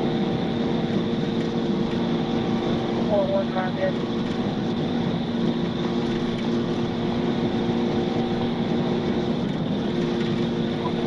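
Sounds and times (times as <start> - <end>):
constant low hum: 0.0 - 11.0
road noise: 0.0 - 11.0
vehicle engine drone: 0.0 - 11.0.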